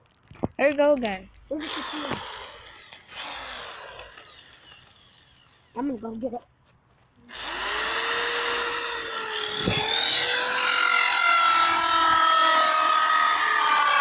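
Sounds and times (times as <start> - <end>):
power tool motor whining: 1.5 - 5.8, 7.3 - 14.0.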